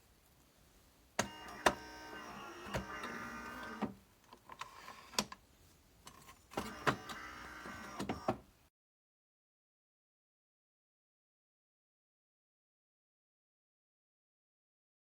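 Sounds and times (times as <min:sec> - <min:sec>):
small electric motor whining: 0:01.3 - 0:03.8.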